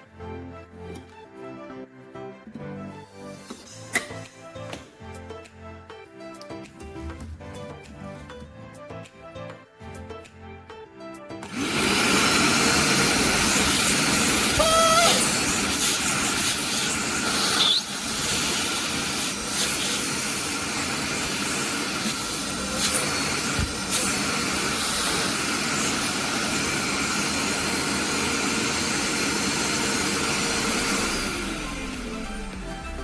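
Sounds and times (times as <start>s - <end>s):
vacuum cleaner running: 11.4s - 32.9s.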